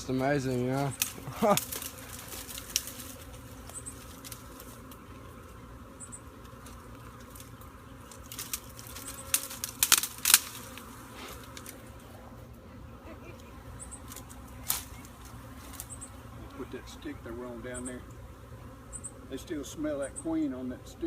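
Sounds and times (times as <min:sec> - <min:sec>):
bee swarm buzzing: 0:00.0 - 0:21.0
sharp crackling knocks: 0:08.2 - 0:10.7.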